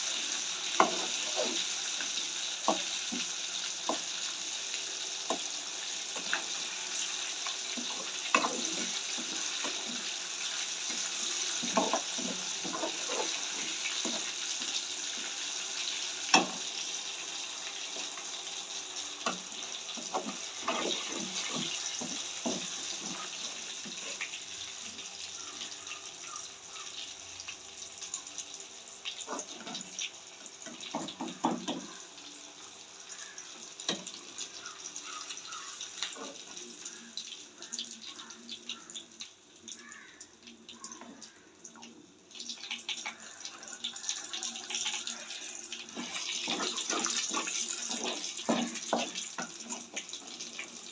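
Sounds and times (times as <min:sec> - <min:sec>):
chicken sizzling in a pan: 0:00.0 - 0:50.9
stirring knocks and scrapes: 0:00.7 - 0:01.7, 0:07.4 - 0:15.4, 0:19.2 - 0:24.4, 0:30.6 - 0:32.0, 0:45.9 - 0:50.7.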